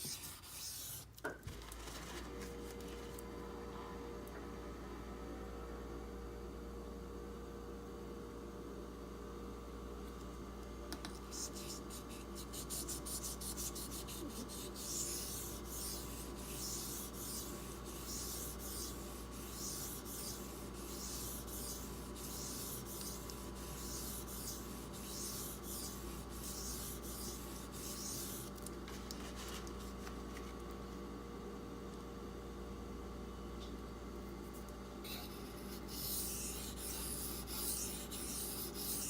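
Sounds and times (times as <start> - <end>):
knife scraping on whetstone: 12.7 - 28.5.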